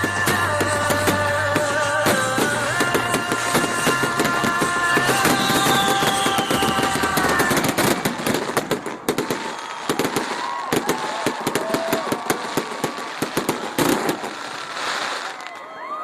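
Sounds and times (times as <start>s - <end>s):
music with long held notes: 0.0s - 7.7s
fireworks crackling and banging: 0.0s - 16.0s.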